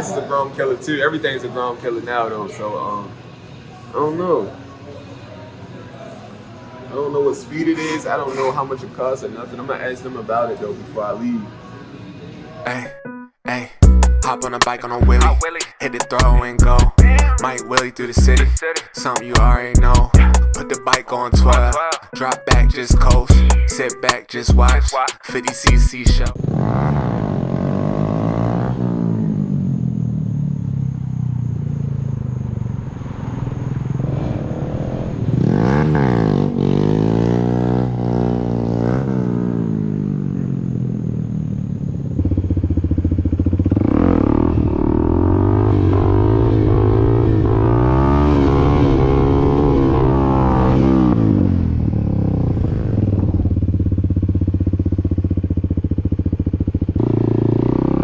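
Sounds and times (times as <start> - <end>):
dirt bike engine revving: 26.3 - 30.1, 33.3 - 54.2, 54.9 - 58.0.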